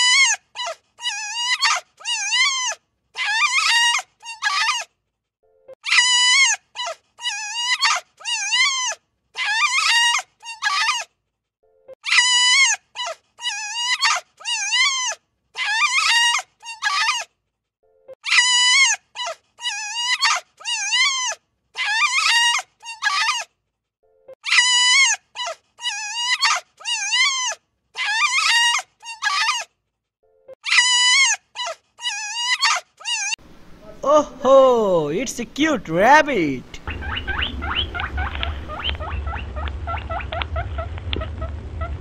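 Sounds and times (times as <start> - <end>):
wolf yipping and whining: 0.0 - 4.9, 5.8 - 11.1, 12.0 - 17.3, 18.2 - 23.5, 24.4 - 29.7, 30.5 - 33.4, 36.8 - 42.0.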